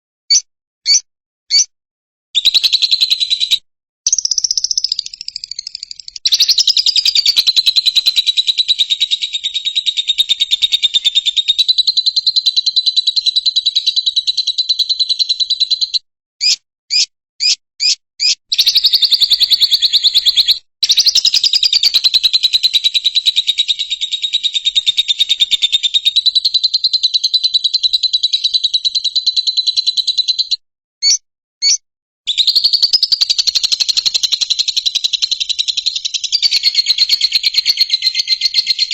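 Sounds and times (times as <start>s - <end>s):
lovebird chattering trill: 0.3s - 1.7s, 2.4s - 38.9s
short bird chirps: 0.3s - 1.7s, 2.4s - 38.9s.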